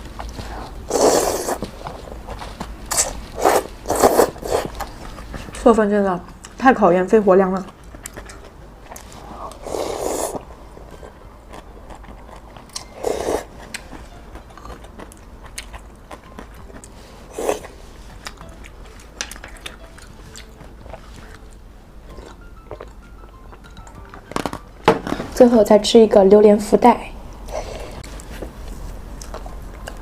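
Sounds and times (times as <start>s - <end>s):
noodle slurps: 0.9s - 1.6s, 2.9s - 4.8s, 9.5s - 10.5s
soft chewing and mouth clicks: 7.6s - 9.6s, 10.4s - 24.3s, 28.0s - 30.0s.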